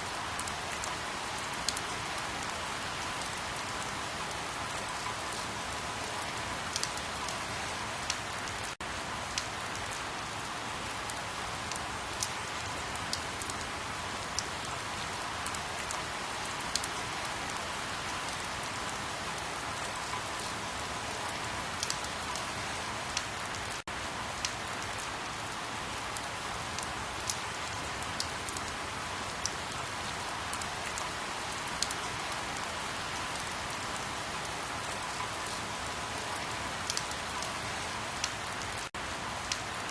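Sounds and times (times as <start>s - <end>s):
steady rain hiss: 0.0s - 39.9s
raindrops ticking: 6.0s - 7.4s, 34.8s - 37.5s.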